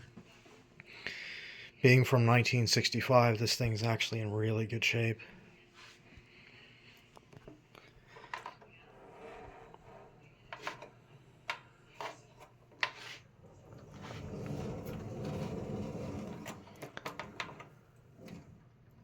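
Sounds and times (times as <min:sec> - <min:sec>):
fan scraping rumble: 0:13.3 - 0:18.6.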